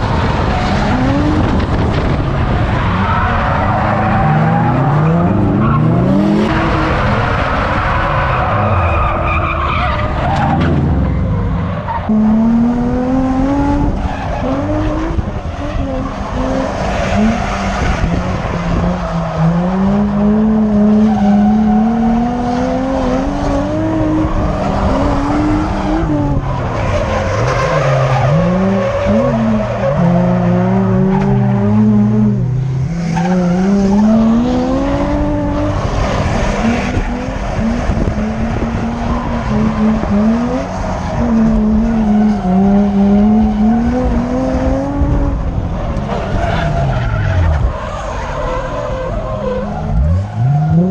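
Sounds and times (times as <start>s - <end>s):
tyres squealing and skidding: 2.3s - 12.6s, 13.6s - 32.2s, 33.0s - 44.3s, 45.6s - 50.9s
car engine revving hard: 12.1s - 45.6s.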